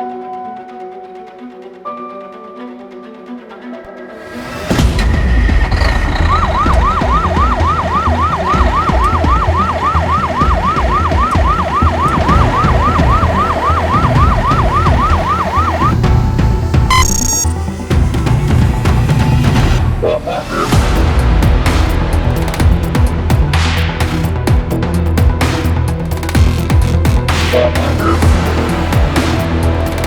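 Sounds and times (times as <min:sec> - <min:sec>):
deep engine rumble: 0:04.2 - 0:23.5
fire truck siren yelping: 0:04.6 - 0:17.8
harsh tone: 0:04.7 - 0:17.8.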